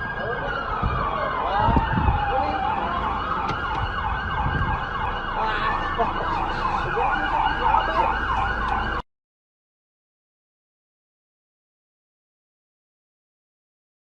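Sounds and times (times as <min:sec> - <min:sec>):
road rumble: 0:00.0 - 0:09.0
emergency vehicle siren: 0:00.0 - 0:09.1.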